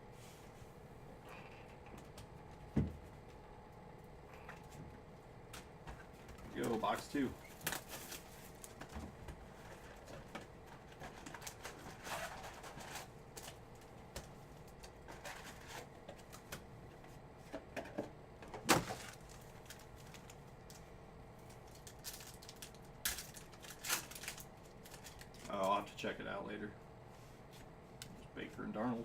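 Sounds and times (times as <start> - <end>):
cardboard and packaging rustling: 5.9 - 16.6, 17.4 - 20.9, 21.5 - 25.8.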